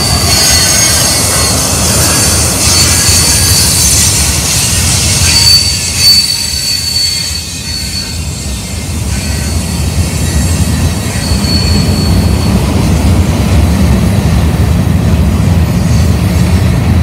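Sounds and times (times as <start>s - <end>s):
high wheel squeal: 0.0s - 12.8s
freight train rumbling on track: 0.0s - 17.0s.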